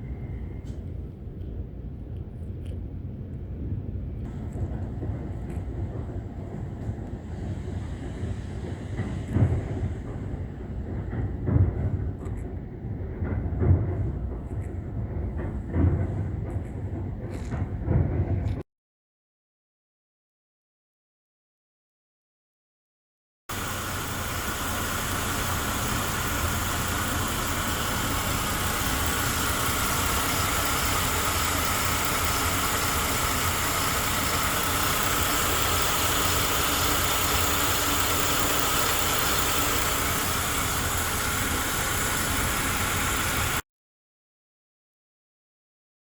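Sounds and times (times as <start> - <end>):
car engine idling: 23.5 - 43.6.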